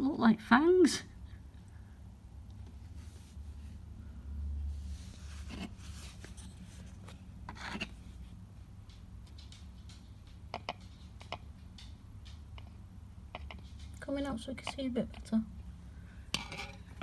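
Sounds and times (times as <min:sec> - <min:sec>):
low steady hum: 0:00.0 - 0:17.0
soft scrapes and rustles: 0:02.7 - 0:03.8, 0:04.6 - 0:08.4.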